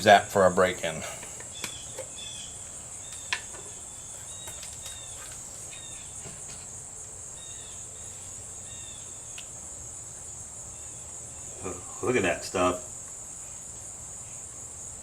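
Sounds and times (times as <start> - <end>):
high-pitched insect trill: 0.5 - 15.0.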